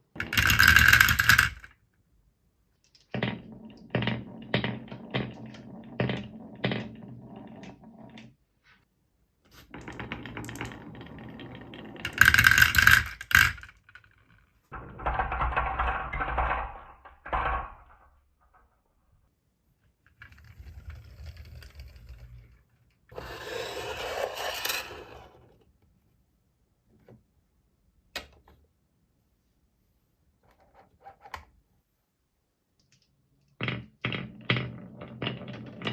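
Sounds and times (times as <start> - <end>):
marbles rolling down toy tracks: 0.2 - 1.7, 9.8 - 18.1, 20.2 - 25.4.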